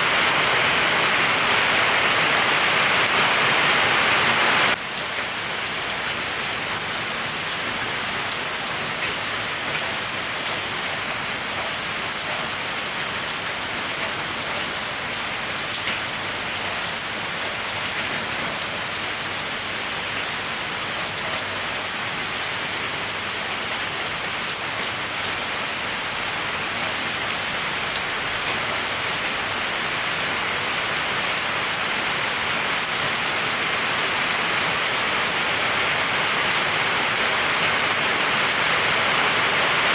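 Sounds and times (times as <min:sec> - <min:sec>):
steady rain hiss: 0:00.0 - 0:08.6, 0:18.8 - 0:39.9.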